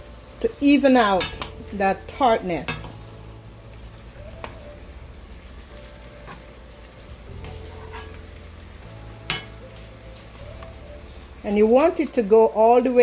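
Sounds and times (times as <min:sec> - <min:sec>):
faint sizzle: 0:00.0 - 0:13.0
fish simmering in sauce: 0:02.6 - 0:11.5.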